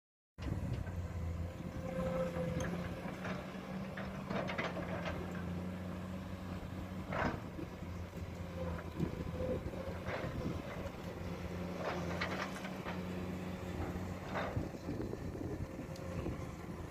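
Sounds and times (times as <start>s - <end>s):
excavator diesel engine running: 0.4s - 16.9s
metal clanks and scrapes: 1.9s - 5.5s, 11.7s - 13.1s.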